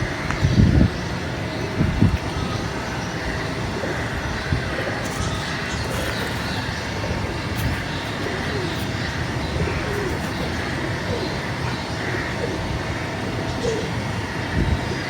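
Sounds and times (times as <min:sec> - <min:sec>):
pigeons cooing: 0:03.1 - 0:15.0.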